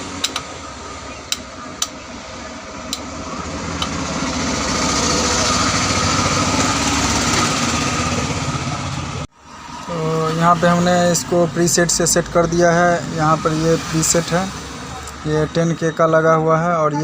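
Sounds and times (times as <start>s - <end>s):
engine-like running noise: 0.0s - 16.9s
relays clicking: 0.1s - 0.5s.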